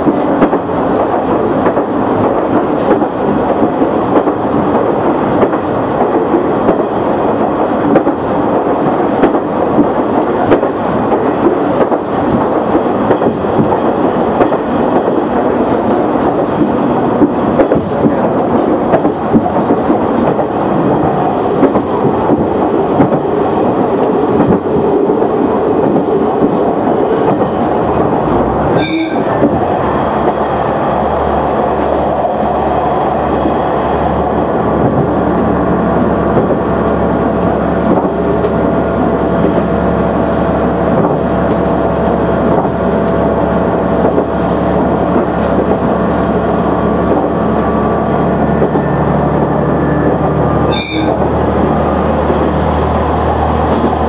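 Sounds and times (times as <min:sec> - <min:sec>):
diesel railcar engine drone: 0:00.0 - 0:54.0.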